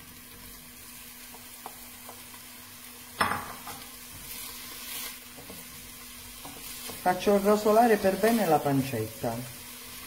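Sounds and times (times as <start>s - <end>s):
food sizzling in a pan: 0.0s - 10.0s
stirring scraping the pan: 3.9s - 8.6s.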